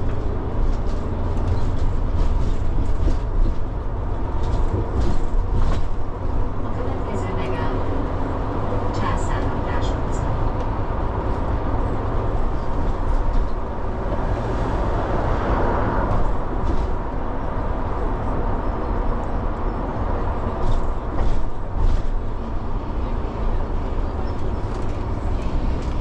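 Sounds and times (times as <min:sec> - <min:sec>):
road noise: 0:00.0 - 0:26.0
vehicle engine running: 0:13.7 - 0:18.4.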